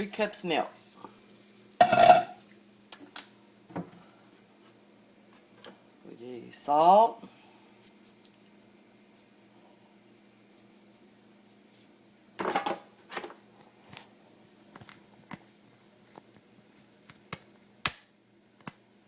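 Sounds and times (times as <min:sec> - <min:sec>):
kitchen items rattling and clattering: 0:01.8 - 0:02.4, 0:12.4 - 0:13.4.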